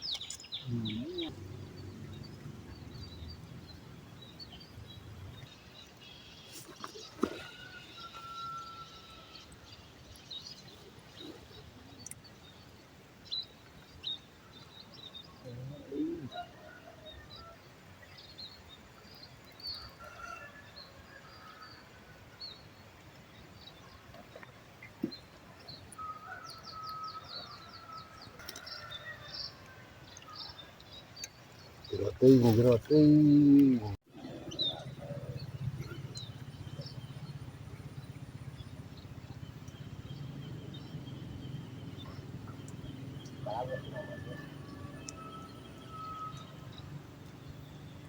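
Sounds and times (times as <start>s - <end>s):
birds chirping: 0.0s - 12.4s, 24.8s - 48.0s.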